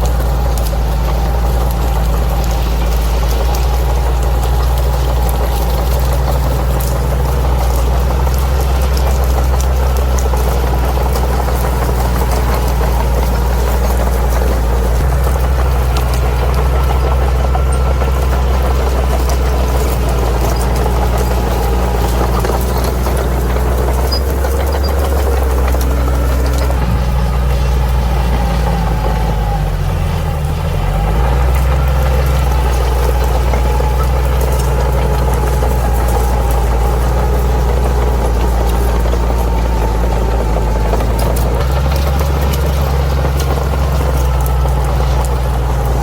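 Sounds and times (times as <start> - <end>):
bulldozer diesel engine running: 0.0 - 46.0.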